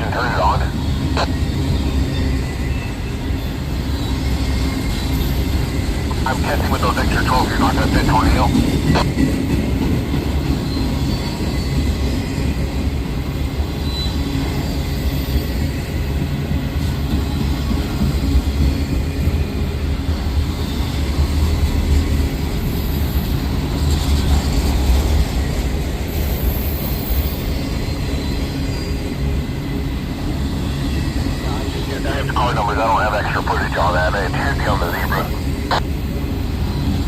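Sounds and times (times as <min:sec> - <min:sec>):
rumble of train wheels on rails: 0:08.5 - 0:31.4.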